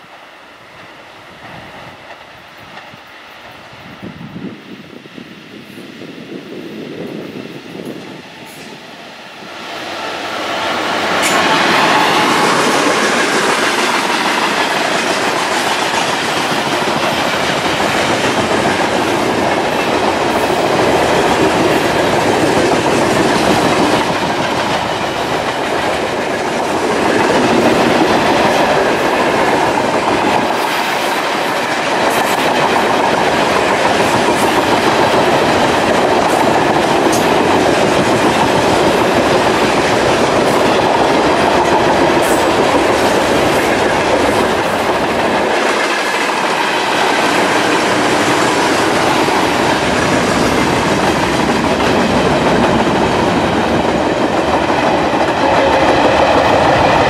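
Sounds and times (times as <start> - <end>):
diesel locomotive passing: 0.0 - 57.0
freight train rolling past: 0.0 - 57.0
wheels clacking over rail joints: 9.8 - 57.0.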